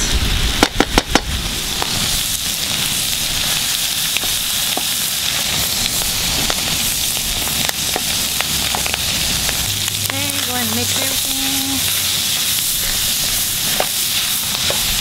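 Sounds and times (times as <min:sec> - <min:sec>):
meat sizzling in a pan: 0:00.2 - 0:15.0.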